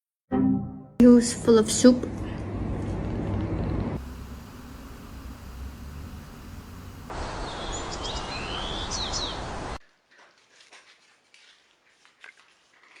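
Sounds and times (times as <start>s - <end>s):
steady background hiss: 4.0s - 9.8s
high bird chirps: 7.4s - 9.5s.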